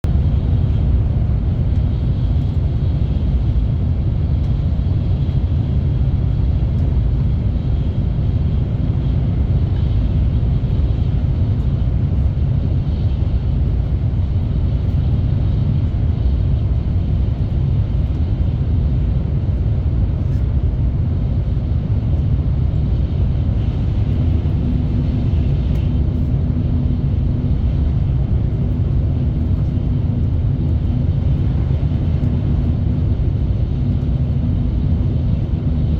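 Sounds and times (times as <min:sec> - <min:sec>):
train rumbling along track: 0:00.0 - 0:35.9.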